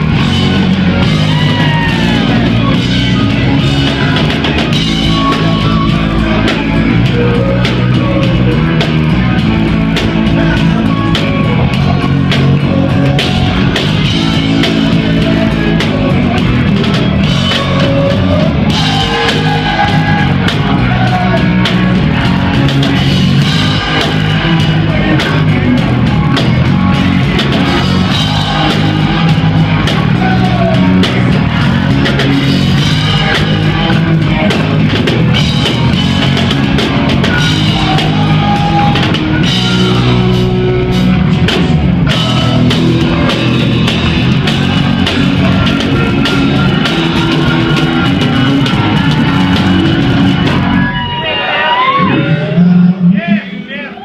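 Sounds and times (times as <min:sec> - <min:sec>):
drum kit beat: 0:00.0 - 0:52.2
electric guitars: 0:00.0 - 0:54.0.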